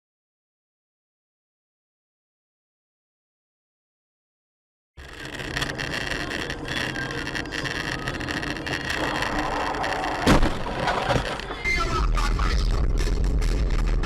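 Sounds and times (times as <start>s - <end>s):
car engine: 5.0s - 11.7s
road noise: 5.0s - 14.0s
sharp bang: 10.2s - 10.8s.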